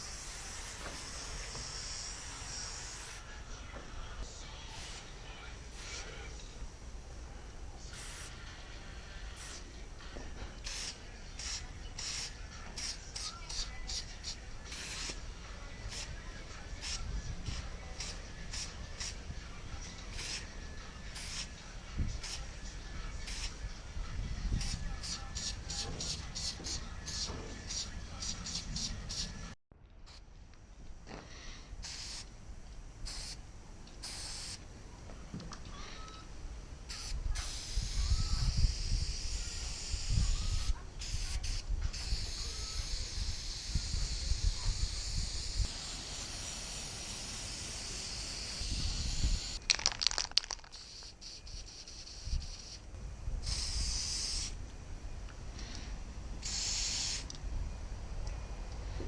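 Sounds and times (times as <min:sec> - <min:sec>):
spray paint can hissing: 0:00.0 - 0:03.3, 0:07.9 - 0:08.4, 0:09.4 - 0:09.7, 0:10.6 - 0:19.3, 0:20.0 - 0:22.6, 0:23.2 - 0:23.7, 0:24.5 - 0:30.2, 0:31.8 - 0:32.3, 0:33.0 - 0:33.4, 0:34.0 - 0:34.6, 0:36.9 - 0:54.6, 0:55.6 - 0:57.4
wind on microphone: 0:15.9 - 0:18.1, 0:21.9 - 0:29.5, 0:37.2 - 0:45.7, 0:48.6 - 0:49.6.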